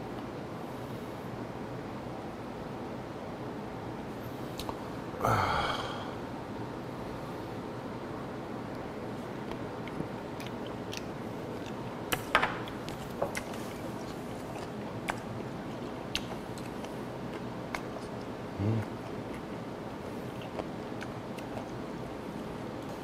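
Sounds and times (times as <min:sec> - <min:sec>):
wet mouth clicks: 0:09.5 - 0:21.8.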